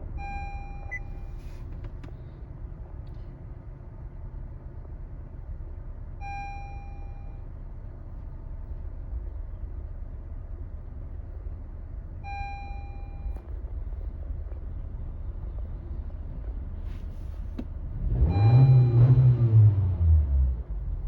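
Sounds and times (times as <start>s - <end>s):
steady low rumble: 0.0s - 19.0s
car engine starting: 12.2s - 21.0s.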